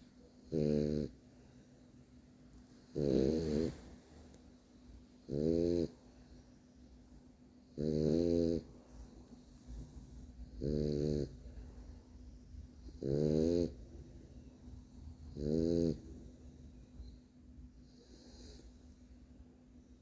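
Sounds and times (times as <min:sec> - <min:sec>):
dog snoring: 0:00.4 - 0:01.2, 0:02.8 - 0:04.1, 0:05.2 - 0:06.1, 0:07.7 - 0:08.8, 0:10.3 - 0:11.7, 0:12.8 - 0:14.0, 0:15.2 - 0:16.4, 0:17.8 - 0:18.8.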